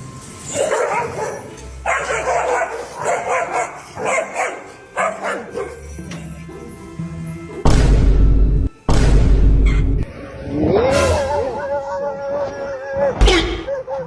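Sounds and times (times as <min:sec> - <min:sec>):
dog barking aggressively: 0:00.5 - 0:05.8.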